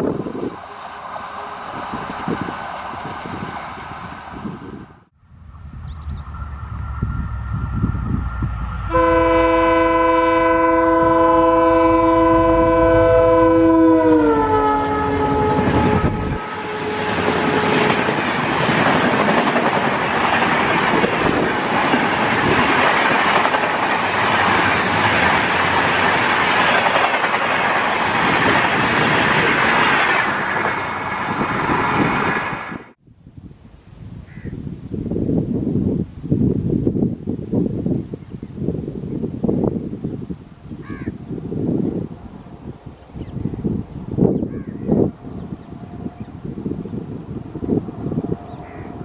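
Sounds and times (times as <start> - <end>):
diesel locomotive passing: 0.0 - 33.0, 41.2 - 49.0
locomotive horn blast: 6.4 - 18.1.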